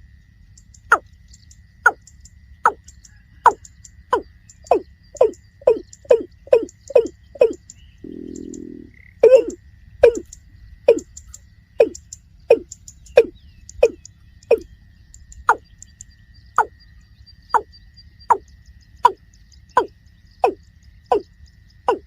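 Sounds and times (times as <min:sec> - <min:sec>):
bird calling deep falling notes: 0:03.4 - 0:11.1.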